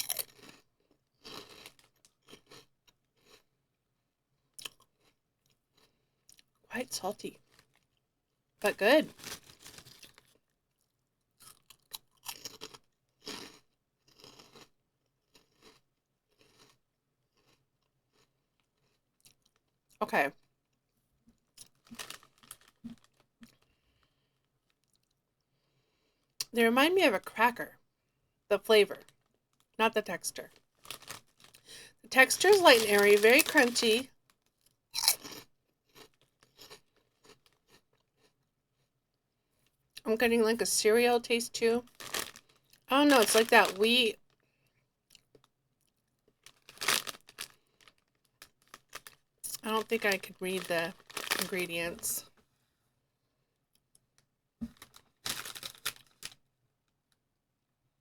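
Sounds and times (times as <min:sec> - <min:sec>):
chewing crunchy snacks: 0:00.0 - 0:03.5, 0:04.4 - 0:06.6, 0:07.4 - 0:08.0, 0:09.1 - 0:20.5, 0:21.4 - 0:25.2, 0:30.5 - 0:38.9, 0:41.8 - 0:44.4, 0:45.0 - 0:52.1, 0:54.7 - 0:56.4.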